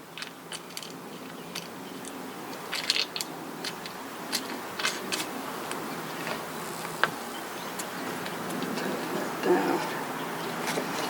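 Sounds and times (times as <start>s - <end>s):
small metal clicks and clinks: 1.6s - 5.3s.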